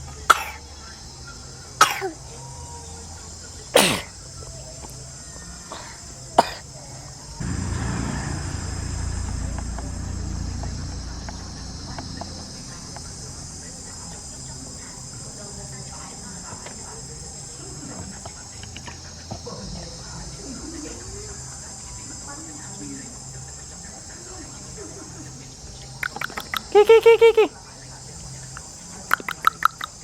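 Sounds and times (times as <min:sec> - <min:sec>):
insects chirring: 0:07.2 - 0:20.4, 0:25.4 - 0:30.0
low rumbling noise: 0:07.4 - 0:15.3.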